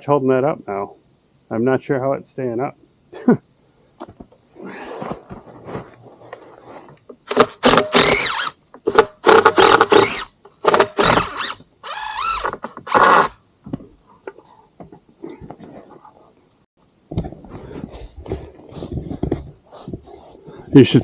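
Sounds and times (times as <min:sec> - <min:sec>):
footsteps crunching in snow: 0:17.4 - 0:20.6.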